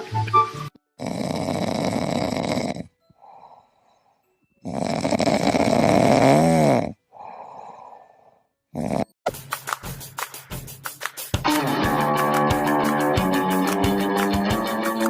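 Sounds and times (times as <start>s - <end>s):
dog snoring: 1.0s - 3.6s, 4.6s - 8.0s, 8.7s - 9.2s.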